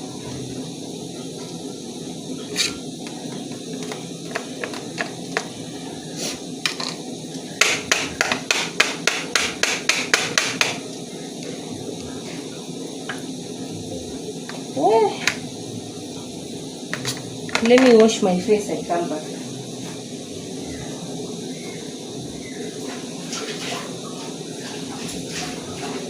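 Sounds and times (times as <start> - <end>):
utensil knocking on hard surface: 7.6 - 10.8.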